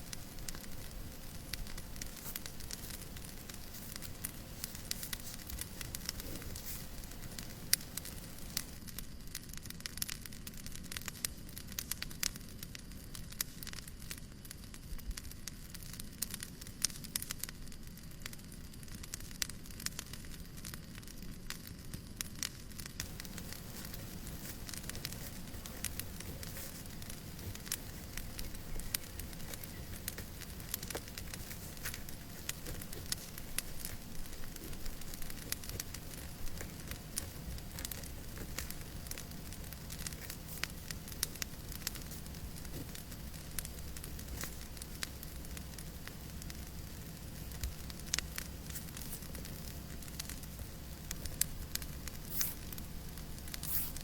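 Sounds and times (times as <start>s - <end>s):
fire popping and snapping: 0.0s - 54.0s
fire rumble and hiss: 0.0s - 54.0s.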